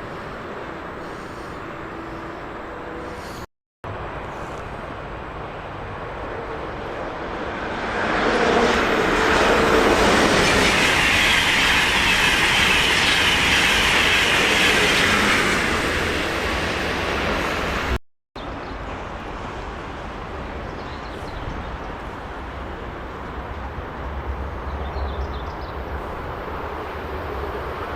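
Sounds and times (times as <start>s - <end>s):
train wheels rolling on rails: 8.5s - 18.0s.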